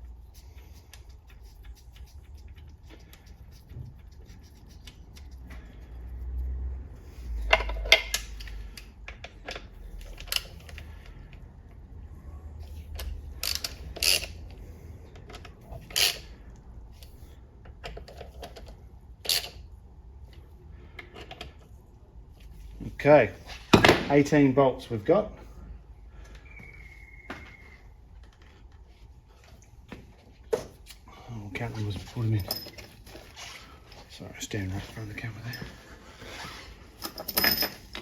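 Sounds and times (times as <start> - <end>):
tools clinking against metal: 32.3 - 33.0.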